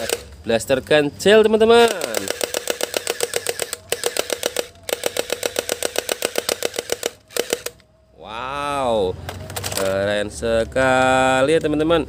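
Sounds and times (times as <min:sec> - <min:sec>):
toy blaster firing rattle: 0:00.0 - 0:00.3, 0:01.7 - 0:07.8.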